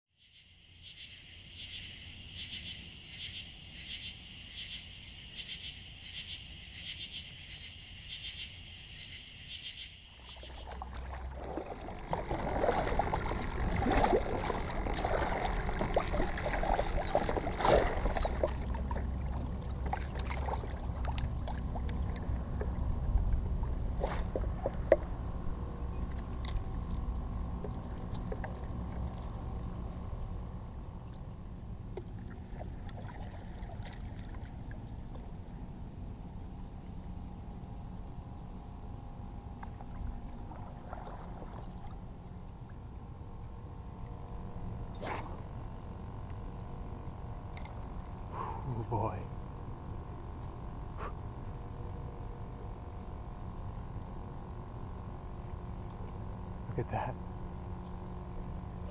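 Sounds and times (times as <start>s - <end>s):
water sloshing around a boat: 10.2s - 37.0s, 39.2s - 58.9s
low rumble: 10.3s - 58.9s.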